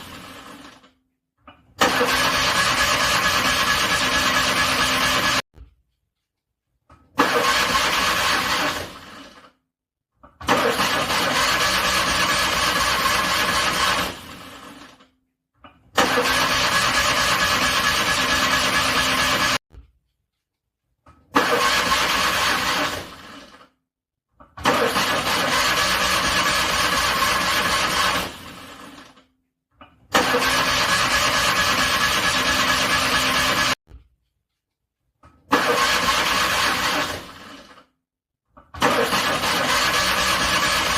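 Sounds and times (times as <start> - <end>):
car starter cranking engine: 1.8 - 5.4, 7.2 - 9.5, 10.4 - 15.0, 16.0 - 19.6, 21.3 - 23.7, 24.6 - 29.2, 30.1 - 33.8, 35.5 - 37.9, 38.8 - 40.9.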